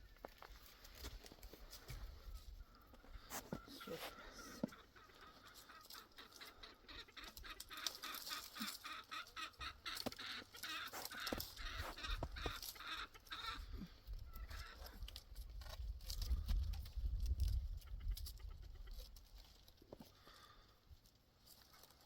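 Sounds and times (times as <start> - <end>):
fowl calling rapidly: 2.7 - 14.9.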